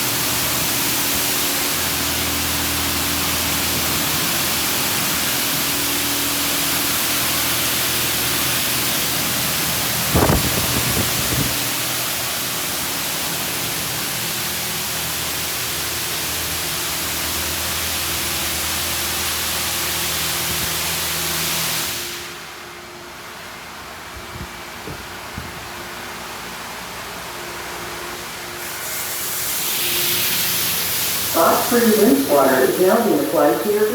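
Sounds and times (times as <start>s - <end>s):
motor hum: 0.0s - 19.7s
water jets spraying on car: 0.0s - 22.6s, 28.5s - 33.7s.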